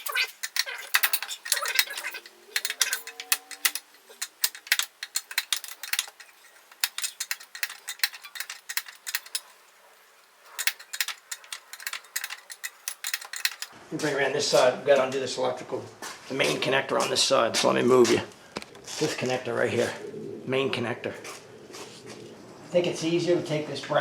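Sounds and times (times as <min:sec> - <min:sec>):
socket ratchet clicking: 0:00.0 - 0:09.5.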